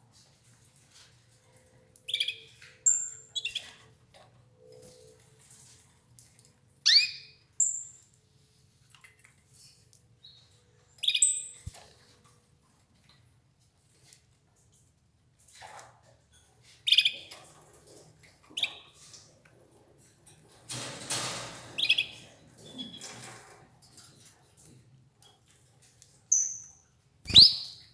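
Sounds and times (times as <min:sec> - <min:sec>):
canaries chirping: 0:06.9 - 0:07.3, 0:27.3 - 0:27.9.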